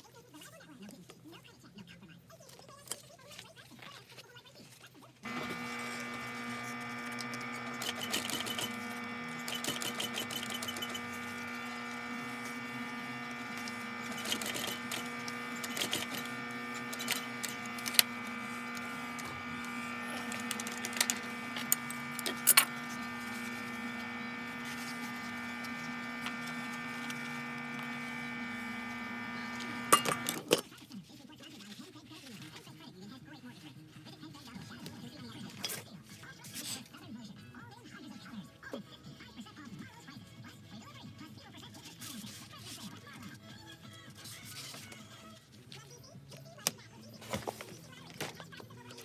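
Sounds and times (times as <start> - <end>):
electric motor humming: 5.3 - 30.5.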